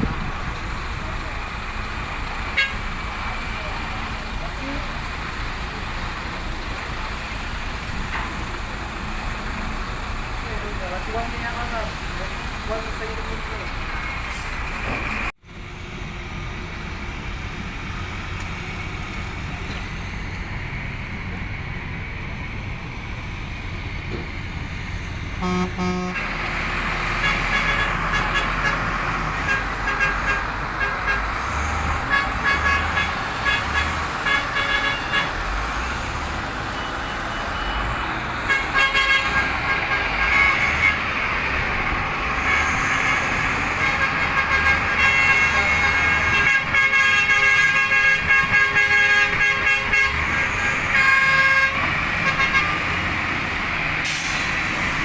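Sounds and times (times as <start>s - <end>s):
dump truck engine running: 0.0s - 55.0s
horn toot: 25.4s - 26.4s, 27.2s - 35.4s, 36.8s - 41.1s, 42.2s - 52.9s.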